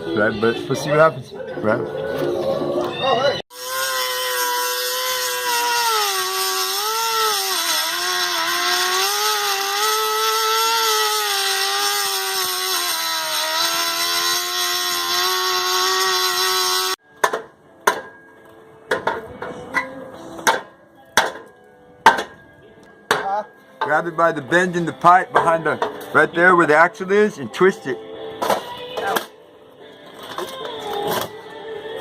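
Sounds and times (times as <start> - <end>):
power cutting tool cutting metal: 3.5 - 17.0
sharp metal knocks: 20.4 - 22.4.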